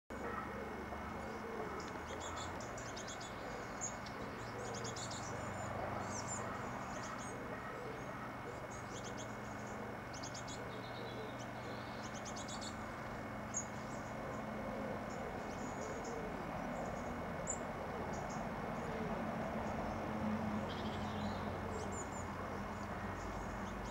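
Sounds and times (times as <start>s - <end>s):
steady low hum: 0.1s - 23.9s
small birds chirping: 0.2s - 23.9s.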